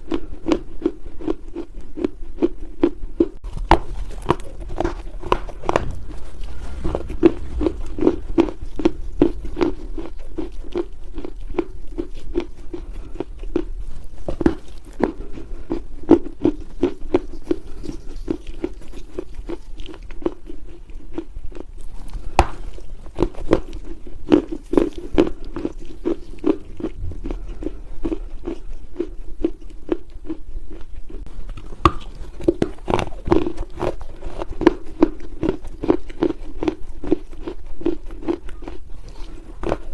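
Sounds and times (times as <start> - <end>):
dry soil crunching and crumbling: 3.4 - 20.5, 31.5 - 39.9.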